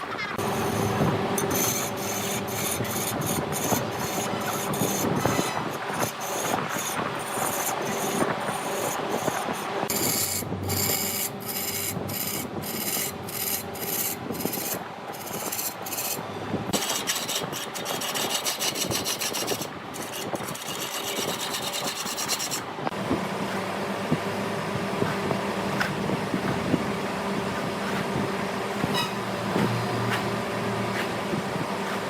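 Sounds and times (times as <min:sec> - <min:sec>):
lathe tool scraping wood: 0:00.4 - 0:23.8
machine hum: 0:09.5 - 0:32.0.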